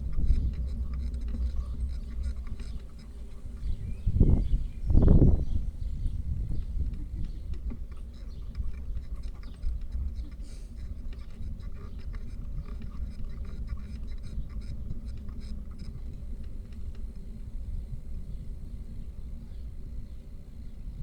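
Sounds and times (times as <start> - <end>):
wind and road noise: 0.0 - 20.2.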